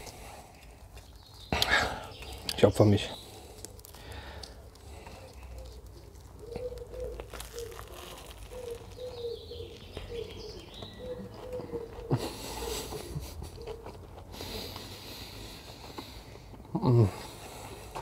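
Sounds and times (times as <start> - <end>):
person chewing food: 0.0 - 1.7, 3.2 - 16.7
soft crunching: 0.0 - 18.0
faint cooing tone: 10.9 - 12.2.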